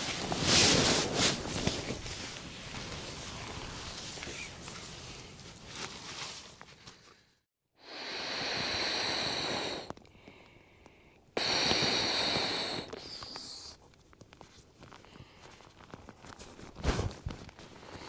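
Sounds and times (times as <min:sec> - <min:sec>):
quiet rustling: 0:00.0 - 0:07.3.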